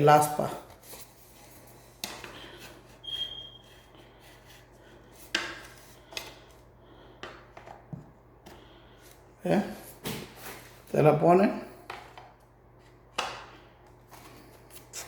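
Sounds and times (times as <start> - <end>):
thin squeak: 3.0 - 3.9.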